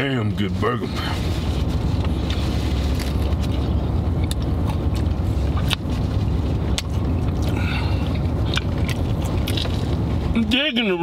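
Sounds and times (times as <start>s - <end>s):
low hum inside car: 0.0s - 11.0s
crunchy food being chewed: 2.0s - 10.0s.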